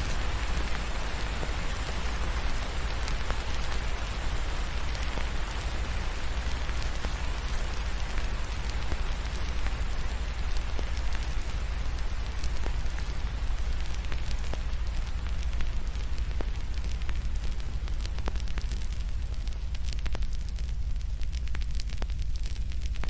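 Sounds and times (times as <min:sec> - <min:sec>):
low steady rumble: 0:00.0 - 0:23.0
rain hiss: 0:00.0 - 0:23.0
wood fire crackling: 0:00.0 - 0:23.0.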